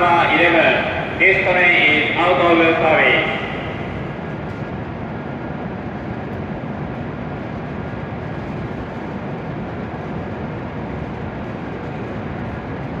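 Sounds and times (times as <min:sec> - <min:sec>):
train equipment hum: 0:00.0 - 0:04.7.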